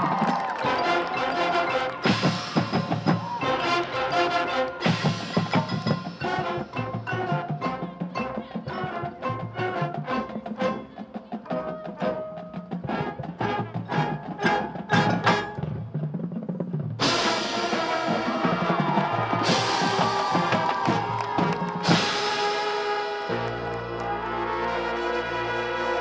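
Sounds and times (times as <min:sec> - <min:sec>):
rhythmic struck percussion: 0:00.0 - 0:24.9
marching band playing: 0:00.0 - 0:26.0.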